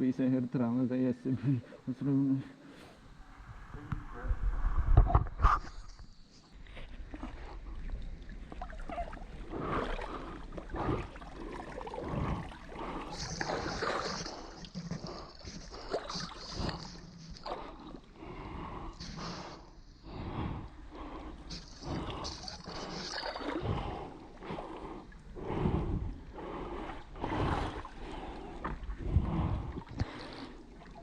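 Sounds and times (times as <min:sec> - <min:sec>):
water gurgling around hull: 0:03.0 - 0:31.0
oars splashing: 0:06.9 - 0:19.7.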